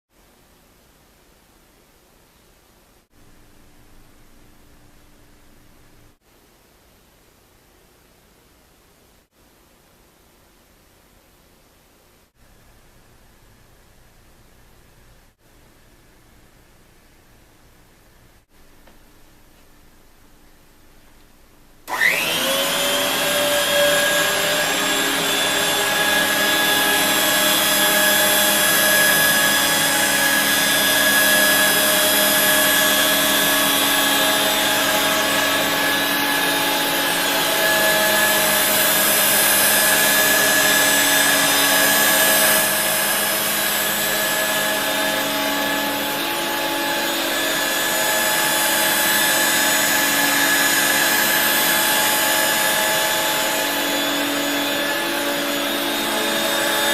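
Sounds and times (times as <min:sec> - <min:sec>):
stick vacuum motor whining: 0:21.9 - 0:56.9.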